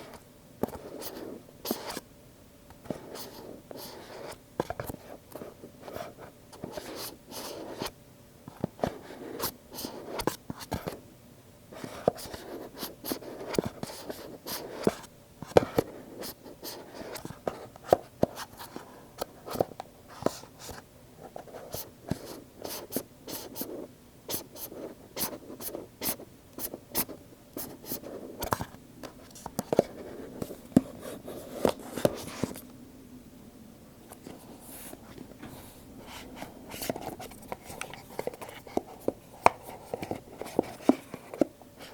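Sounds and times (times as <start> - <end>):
scratching and rubbing on cardboard: 19.4 - 28.6, 34.2 - 41.9.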